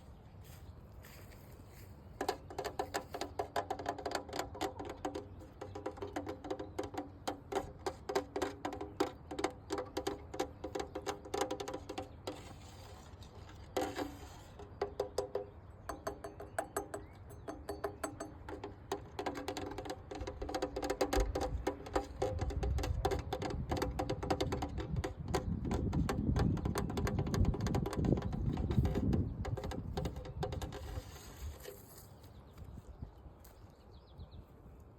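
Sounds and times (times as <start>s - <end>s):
fingertip tapping on hard object: 2.2s - 12.2s, 14.8s - 31.0s.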